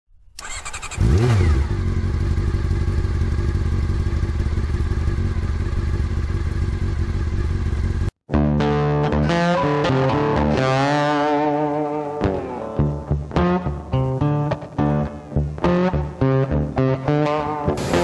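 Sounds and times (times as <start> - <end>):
motorcycle engine starting and idling: 0.3 - 8.2.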